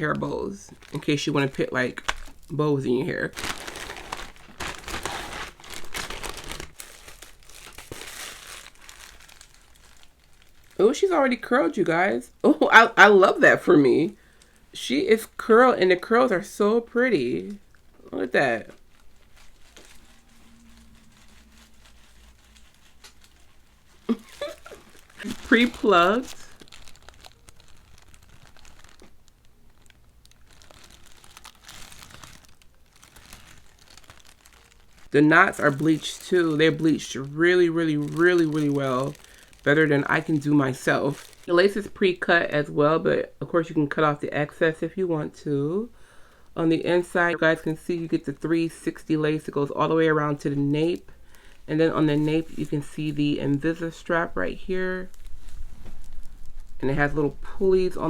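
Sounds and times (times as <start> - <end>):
packaging crinkling and rustling: 0.0 - 11.4, 17.2 - 42.0, 50.2 - 58.0.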